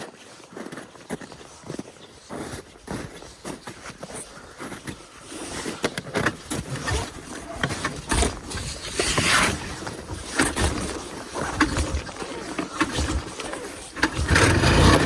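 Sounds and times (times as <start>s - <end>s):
recoil starter pulls rasping: 6.6s - 15.0s.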